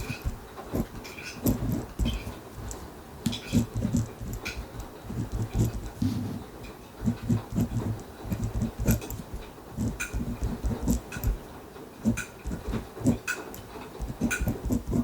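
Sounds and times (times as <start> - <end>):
ballpoint pen scratching on paper: 0.0 - 15.0
pen clicking against desk: 7.0 - 11.4, 12.0 - 15.0.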